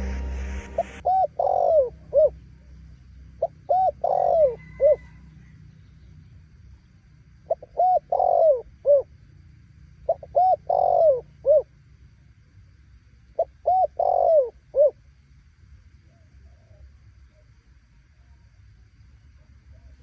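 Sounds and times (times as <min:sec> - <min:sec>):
dove cooing: 0:01.0 - 0:02.3, 0:03.4 - 0:05.1, 0:07.5 - 0:09.1, 0:10.1 - 0:11.7, 0:13.4 - 0:15.0.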